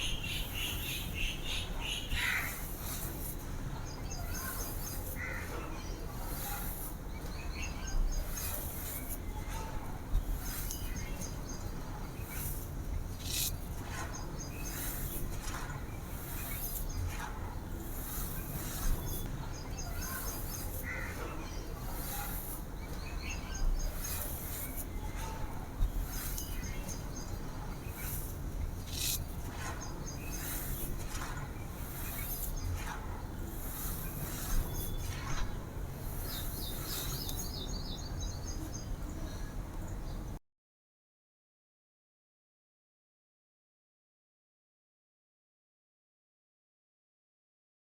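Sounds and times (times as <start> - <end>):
birds chirping: 0.0 - 2.4.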